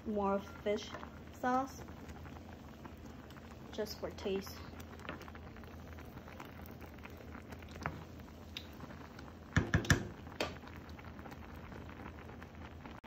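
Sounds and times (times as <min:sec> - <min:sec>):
kitchen utensils clicking and tapping: 0:09.6 - 0:10.6.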